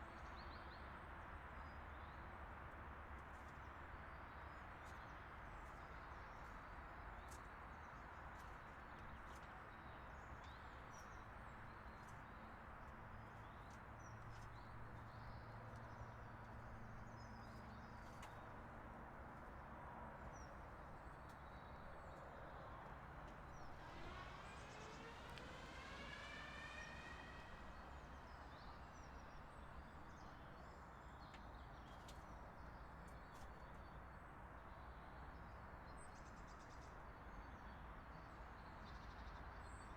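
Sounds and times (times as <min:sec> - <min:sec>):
low outdoor rumble: 0:20.4 - 0:30.4
rising pitched tone: 0:23.7 - 0:28.0.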